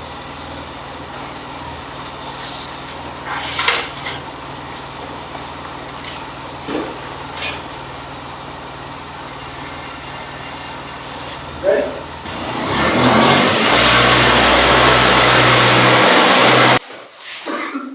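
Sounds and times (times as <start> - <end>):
car engine idling: 0.0 - 16.8
clattering knocks: 0.9 - 12.4.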